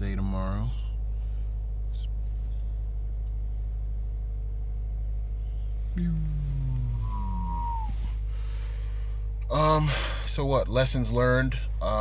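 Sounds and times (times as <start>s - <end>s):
car engine idling: 0.0s - 12.0s
low hum falling in pitch: 3.6s - 9.4s.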